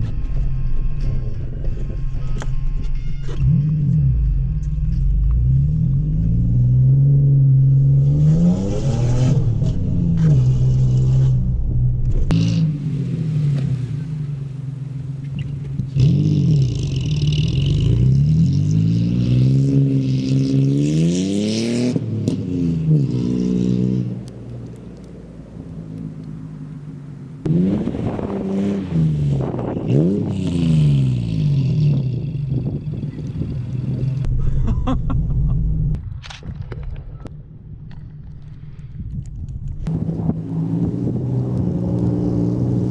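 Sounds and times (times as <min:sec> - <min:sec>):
truck engine revving: 0:03.3 - 0:34.4, 0:39.8 - 0:42.9.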